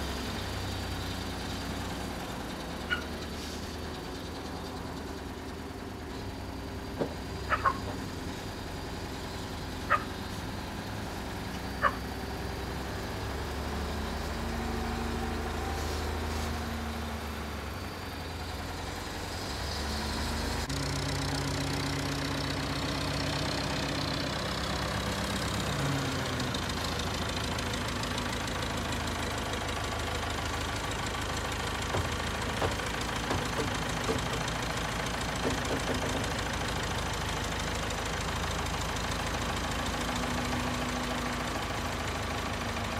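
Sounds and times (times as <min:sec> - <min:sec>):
engine running: 0:00.0 - 0:42.9
sharp knocks: 0:32.0 - 0:34.6, 0:35.4 - 0:36.4.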